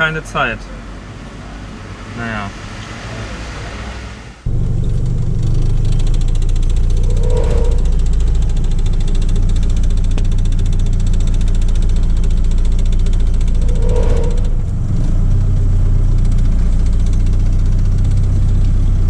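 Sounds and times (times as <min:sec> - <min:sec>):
engine with rough exhaust: 0:00.0 - 0:19.0.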